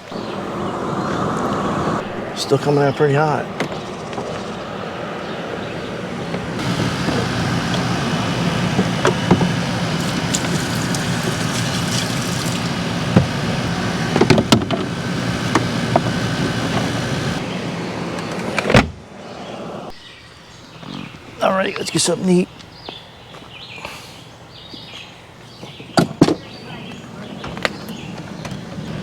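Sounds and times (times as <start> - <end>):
portable air conditioner running: 5.6 - 18.2.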